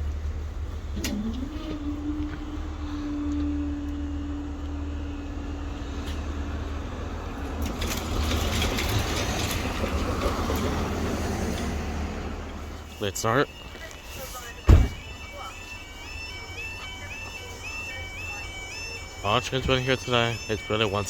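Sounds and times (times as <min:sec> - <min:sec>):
engine rumble: 0:00.0 - 0:21.0
vehicle rushing past: 0:00.8 - 0:12.9.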